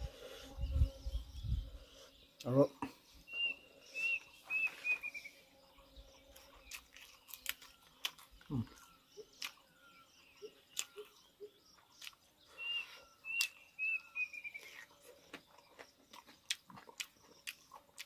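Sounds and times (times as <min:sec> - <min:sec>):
bird chirping: 0:00.0 - 0:18.0
man chewing food: 0:06.1 - 0:18.0
mouth clicks: 0:10.7 - 0:11.2, 0:13.3 - 0:13.6.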